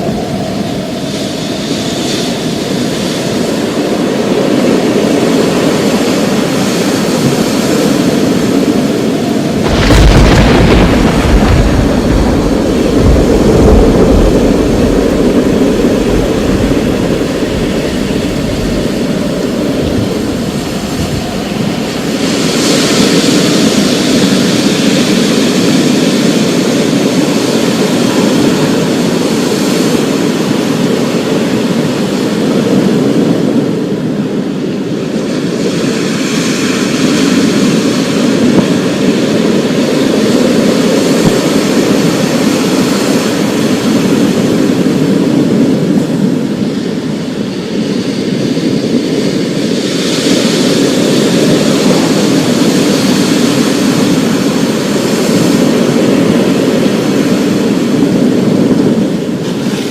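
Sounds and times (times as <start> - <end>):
heavy rain: 0.0 - 33.3, 35.4 - 59.9
thunder clap and rumble: 4.5 - 32.0.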